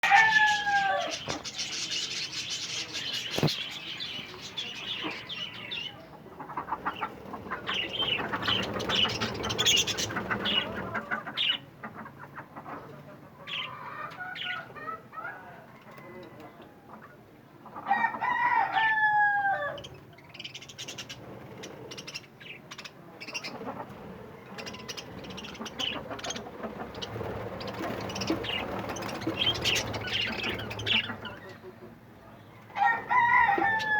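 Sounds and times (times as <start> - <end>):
drawn-out falling bird calls: 0.0 - 6.0, 6.7 - 11.6, 23.4 - 31.6
budgerigars chattering: 0.0 - 12.8, 19.8 - 31.7.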